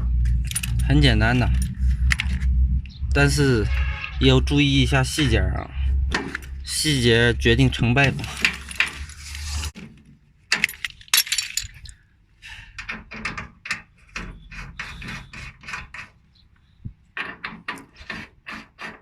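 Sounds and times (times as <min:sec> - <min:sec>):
metal clinks and knocks: 0:00.0 - 0:03.1, 0:09.8 - 0:12.0.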